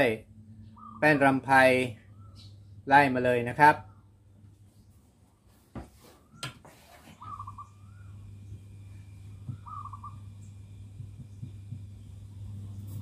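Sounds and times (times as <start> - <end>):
low steady hum: 0.0 - 13.0
bird pulsed call: 0.5 - 1.4, 2.0 - 2.8, 7.2 - 11.9.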